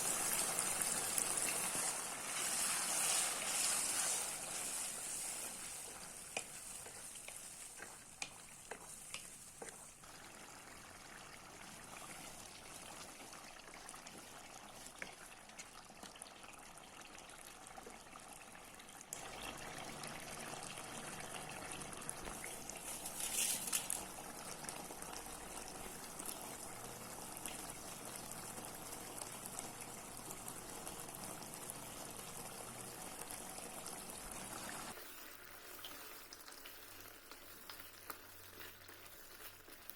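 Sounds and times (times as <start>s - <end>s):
food sizzling and bubbling in pan: 0.0s - 39.9s
stirring clicks: 4.0s - 10.2s, 35.7s - 39.9s.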